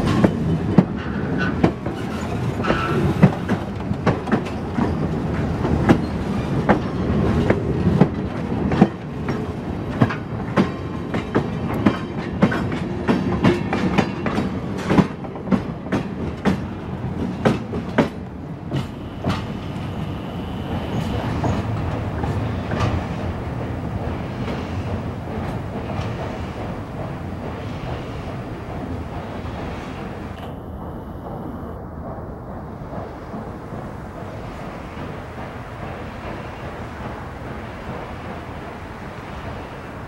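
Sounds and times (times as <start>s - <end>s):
low train rumble: 0.0s - 40.0s
train wheels clicking over rail joints: 0.0s - 40.0s.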